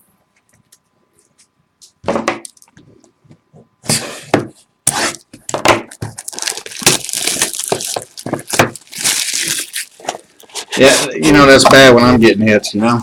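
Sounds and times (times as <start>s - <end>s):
wrapper crinkling and tearing: 6.1s - 10.5s.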